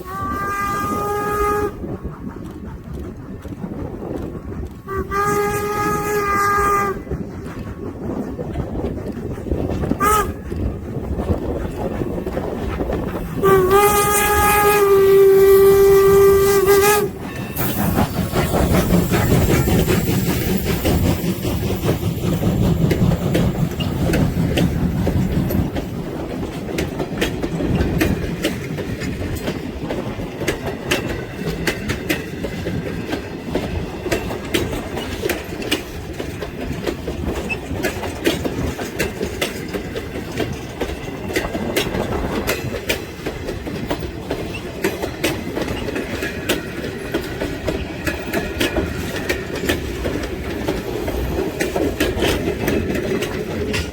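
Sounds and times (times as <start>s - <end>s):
steam whistle blast: 0.0s - 1.8s, 4.9s - 7.0s, 10.0s - 10.4s, 13.4s - 17.2s
steam locomotive passing: 0.0s - 53.9s
train wheels clicking over rail joints: 0.0s - 53.9s.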